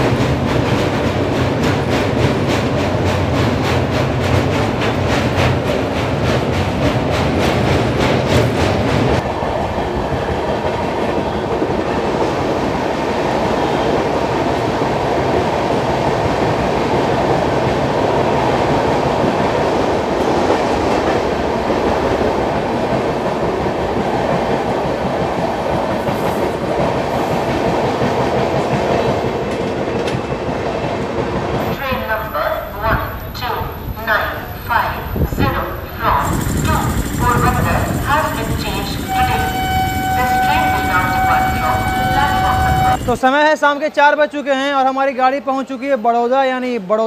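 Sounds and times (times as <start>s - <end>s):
train wheels rumbling on rail: 0.0s - 43.6s
wheel clacks: 36.2s - 43.2s.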